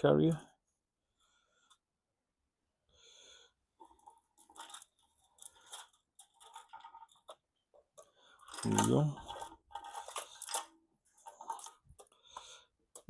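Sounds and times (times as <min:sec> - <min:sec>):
light clicks and scrapes: 0:03.8 - 0:13.0.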